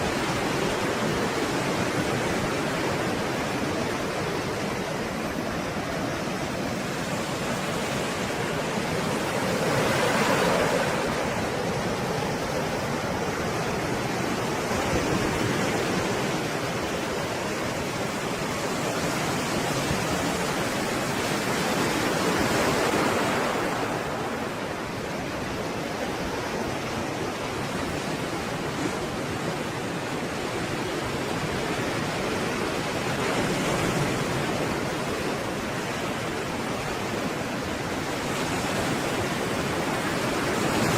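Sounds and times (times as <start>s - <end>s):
waves breaking: 0.0s - 40.9s.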